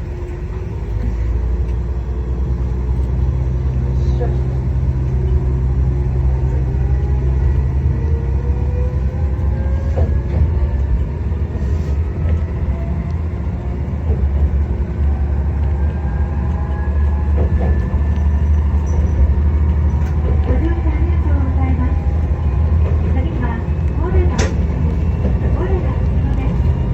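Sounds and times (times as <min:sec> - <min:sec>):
diesel railcar engine rumble: 0:00.0 - 0:26.9
wheels clicking on rails: 0:02.8 - 0:26.9.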